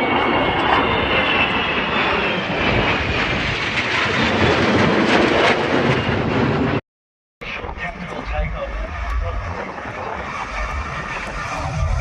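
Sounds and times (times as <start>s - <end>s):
aircraft engines running: 0.0s - 6.8s, 7.4s - 12.0s
high whine: 7.4s - 12.0s.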